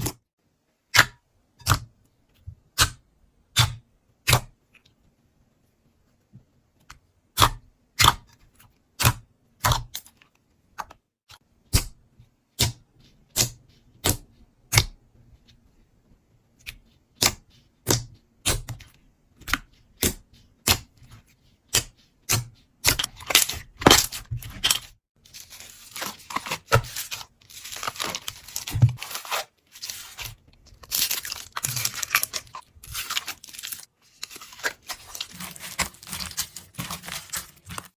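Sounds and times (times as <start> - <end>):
slime crackling and squishing: 21.7 - 37.9.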